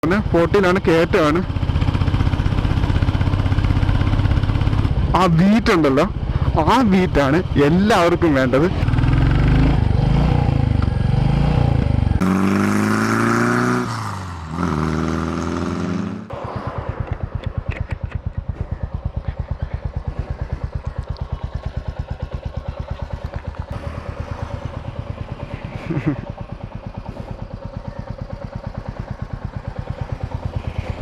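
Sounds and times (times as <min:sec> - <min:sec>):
motorcycle engine slowing and idling: 0:00.0 - 0:31.0.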